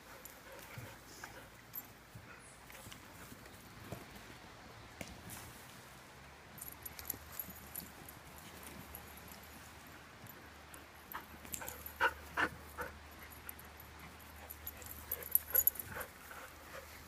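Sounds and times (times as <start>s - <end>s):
light clicks and rattles: 6.5s - 16.5s.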